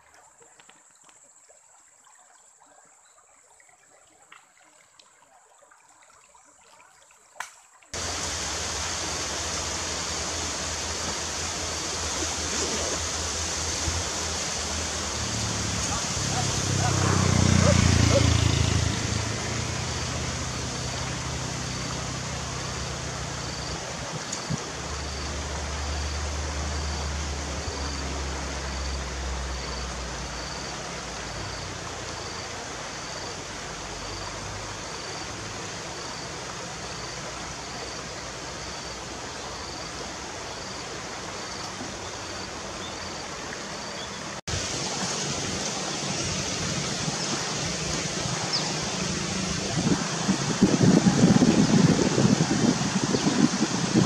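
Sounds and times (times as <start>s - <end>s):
steady rushing outdoor noise: 8.0s - 54.0s.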